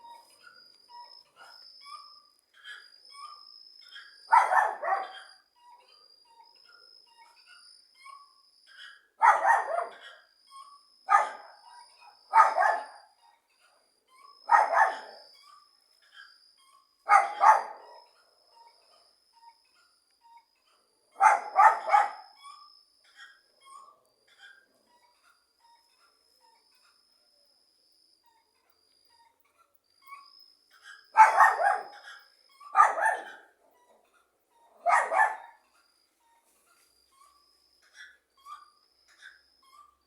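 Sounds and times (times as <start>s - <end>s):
faint small chirps: 0.0s - 40.0s
dog barking: 4.3s - 5.4s, 9.2s - 10.2s, 11.1s - 13.2s, 14.4s - 15.4s, 17.1s - 18.2s, 21.2s - 22.4s, 31.2s - 33.9s, 34.8s - 35.6s.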